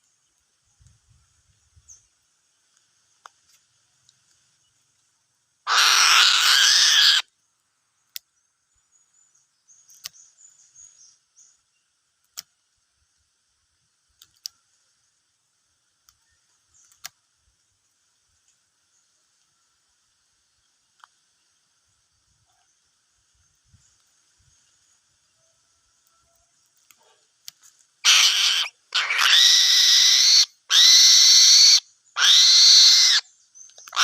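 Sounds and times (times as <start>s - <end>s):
eagle harsh call: 5.7s - 7.2s, 28.0s - 33.2s
faint scattered clicks: 9.8s - 10.3s, 12.2s - 12.7s, 14.0s - 14.8s, 16.0s - 17.4s, 20.8s - 21.5s.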